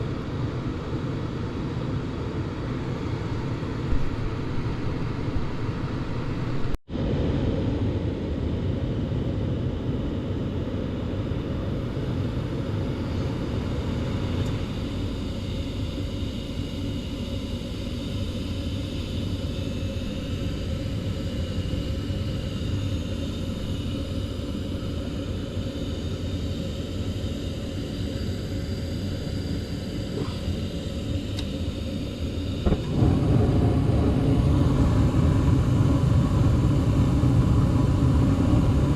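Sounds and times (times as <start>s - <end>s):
gas furnace rumbling: 32.5s - 38.9s.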